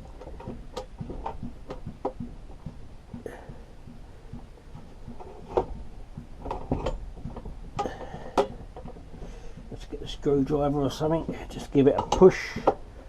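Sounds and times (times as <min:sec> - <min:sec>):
low steady hum: 0:00.0 - 0:13.0
metal tool clicks and knocks: 0:11.9 - 0:12.8.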